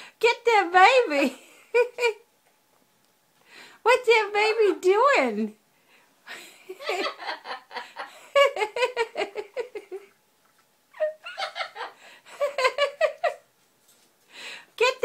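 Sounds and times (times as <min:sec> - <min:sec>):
parrot laughing: 0:10.9 - 0:13.4.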